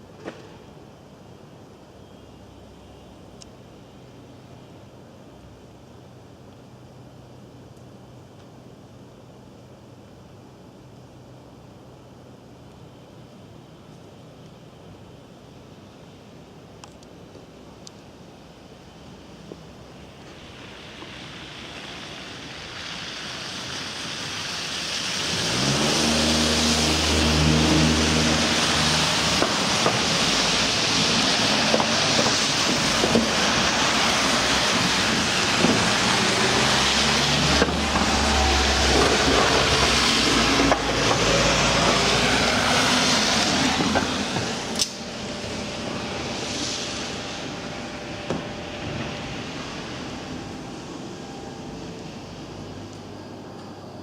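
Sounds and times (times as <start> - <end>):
electric train running: 19.4 - 54.0.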